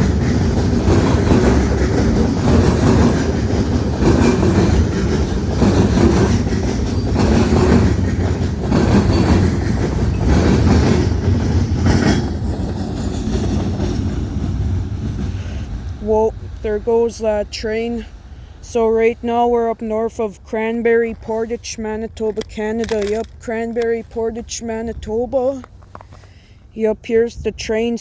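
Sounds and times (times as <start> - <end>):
train wheels clacking over rail joints: 0.0 - 16.6, 22.3 - 26.4
low rumble of railway cars: 0.0 - 28.0.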